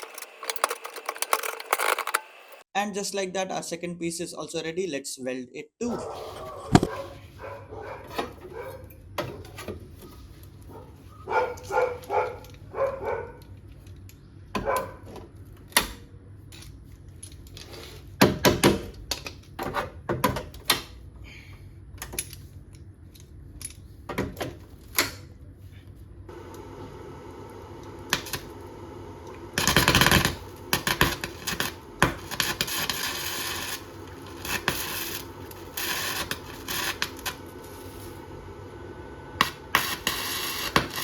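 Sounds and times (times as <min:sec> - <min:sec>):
welding bursts: 0:00.0 - 0:02.6, 0:27.6 - 0:38.6, 0:39.4 - 0:41.0.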